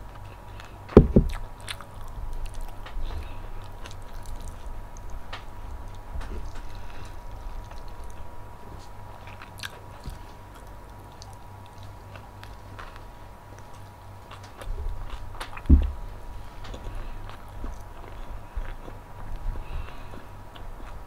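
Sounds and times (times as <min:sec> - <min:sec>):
chewing and biting food: 0:00.0 - 0:21.0
heavy low thump: 0:00.9 - 0:01.4, 0:15.6 - 0:16.1.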